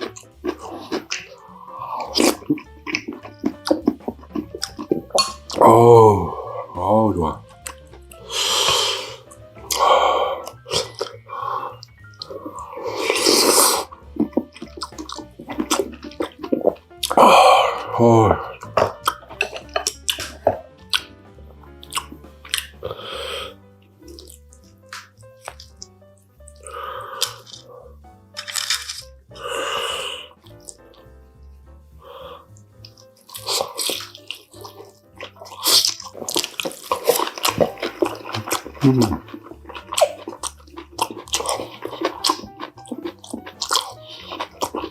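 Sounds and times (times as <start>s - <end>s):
slurping or biting: 0.0s - 31.0s, 32.0s - 44.9s
faint background music: 0.0s - 44.9s
wet chewing clicks: 0.0s - 44.9s.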